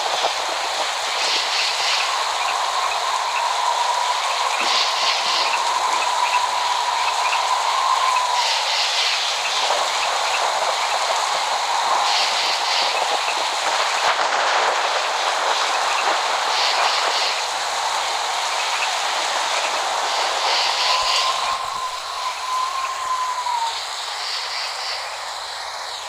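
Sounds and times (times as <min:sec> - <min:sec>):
heavy rain falling: 0:00.0 - 0:26.0
thin whistling tone: 0:20.4 - 0:25.2.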